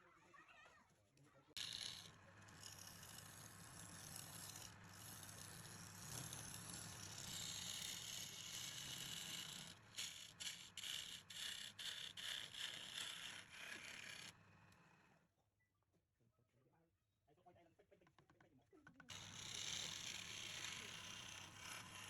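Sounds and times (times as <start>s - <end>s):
lathe tool scraping wood: 1.6s - 14.4s, 19.1s - 22.0s.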